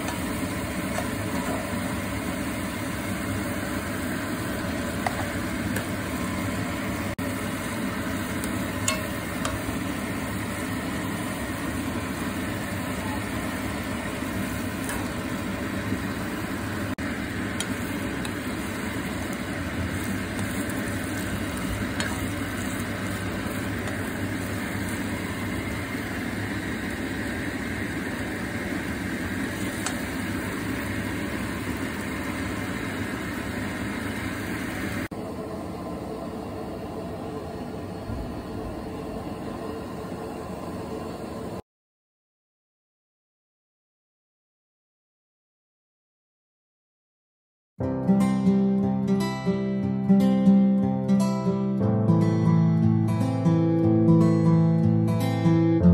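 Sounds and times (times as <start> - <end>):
noodles sizzling in a wok: 0.0 - 41.6.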